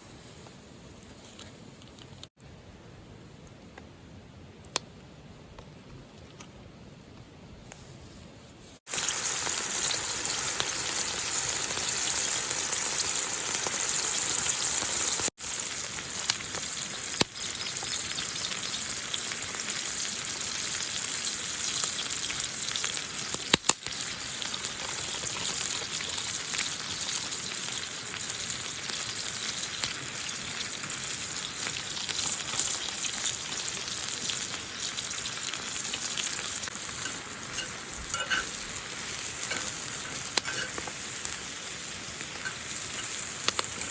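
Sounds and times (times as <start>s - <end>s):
food sizzling in a frying pan: 8.8s - 43.9s.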